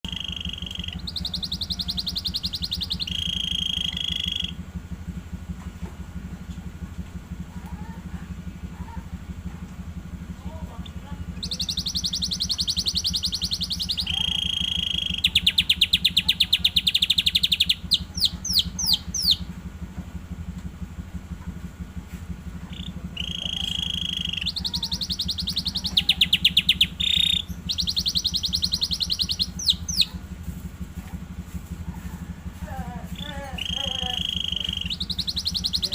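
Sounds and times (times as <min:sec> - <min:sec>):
canary trilling song: 0:00.0 - 0:04.6, 0:10.8 - 0:19.6, 0:22.5 - 0:30.6, 0:31.8 - 0:35.9
steady low hum: 0:00.0 - 0:35.9.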